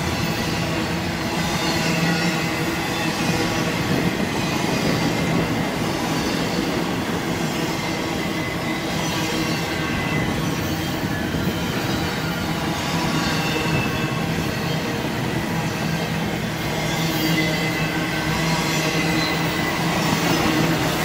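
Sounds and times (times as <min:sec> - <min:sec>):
freight train wheels rumbling: 0:00.0 - 0:21.0
faint wheel squeal: 0:16.8 - 0:21.0.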